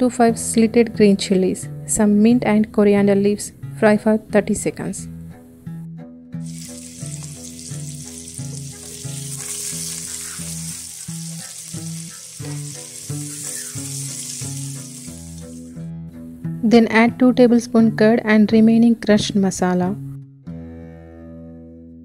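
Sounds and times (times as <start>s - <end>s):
background music with plucked notes: 0.0s - 22.0s
food sizzling in hot ghee: 6.4s - 15.8s.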